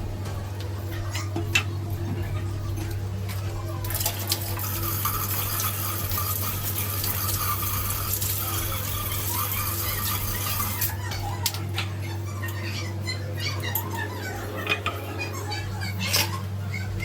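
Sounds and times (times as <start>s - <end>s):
steady low hum: 0.0s - 17.0s
water running: 0.0s - 17.0s.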